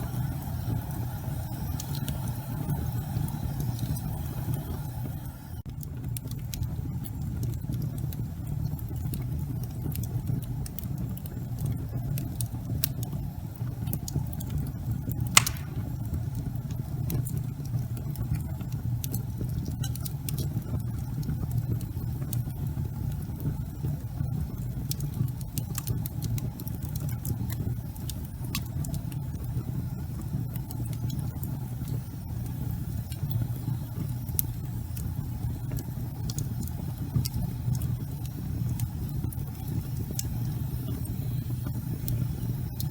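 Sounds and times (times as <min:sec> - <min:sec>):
fire crackles and snaps: 0:00.0 - 0:42.9
fire flames rumbling: 0:00.0 - 0:42.9
loud fire pop: 0:15.3 - 0:16.3.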